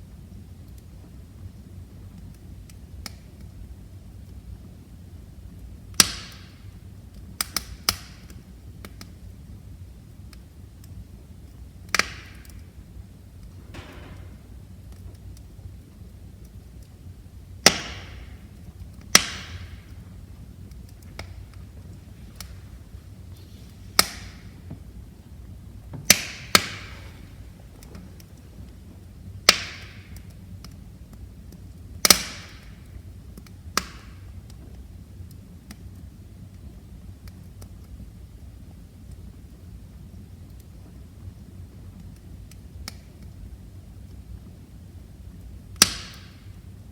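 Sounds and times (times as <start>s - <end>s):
flame rustling: 0.0s - 46.9s
wood fire crackling: 0.0s - 46.9s
loud sharp fire pops: 5.9s - 9.1s, 11.8s - 16.9s, 17.5s - 34.7s, 45.8s - 46.6s
small crackling ticks: 7.1s - 9.2s, 29.5s - 44.5s
low steady rumble: 12.6s - 32.0s
short soft hiss: 21.9s - 24.7s.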